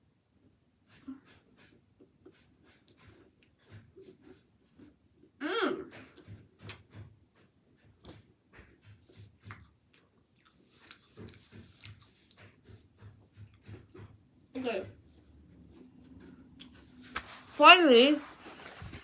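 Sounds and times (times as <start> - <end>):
person chewing cookie crunches: 1.2 - 5.4, 8.0 - 14.2.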